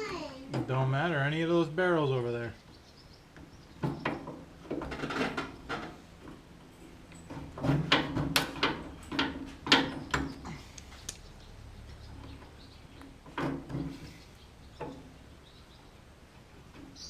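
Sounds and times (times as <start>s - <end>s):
knocks and clunks of handling: 3.4s - 6.5s, 7.1s - 10.7s, 12.2s - 14.2s.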